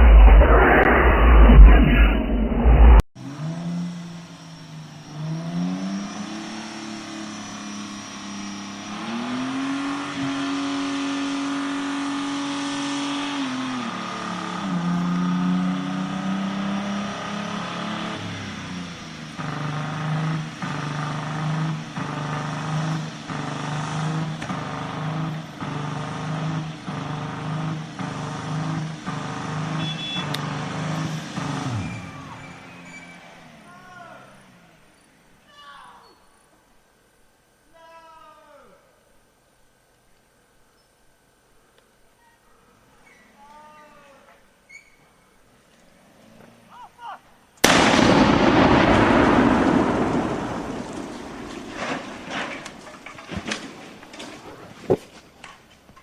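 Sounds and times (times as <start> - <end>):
car engine revving: 0.0 - 35.0, 47.6 - 54.6.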